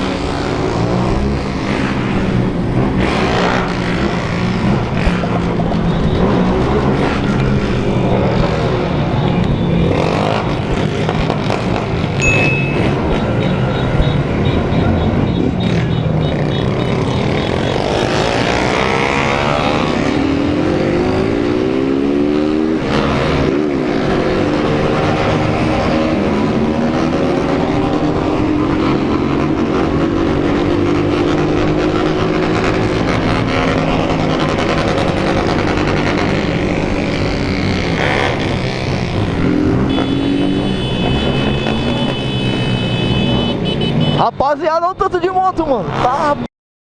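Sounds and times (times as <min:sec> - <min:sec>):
motorcycles revving in convoy: 0:00.0 - 0:46.5
high steady tones: 0:12.2 - 0:13.9.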